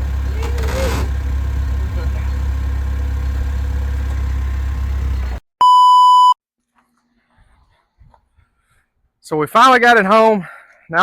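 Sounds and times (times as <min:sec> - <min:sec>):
vehicle engine droning: 0:00.0 - 0:05.4
loud electronic beep: 0:05.6 - 0:06.4.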